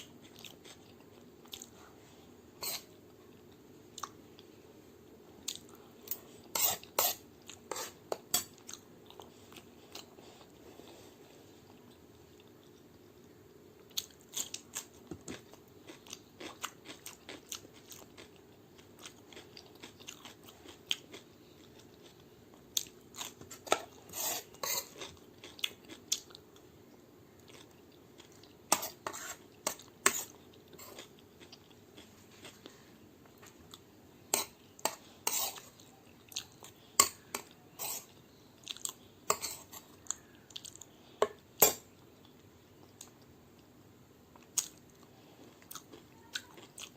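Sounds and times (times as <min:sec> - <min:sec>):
chewing crunchy vegetables: 0:00.0 - 0:01.9, 0:05.4 - 0:43.7, 0:44.3 - 0:46.9.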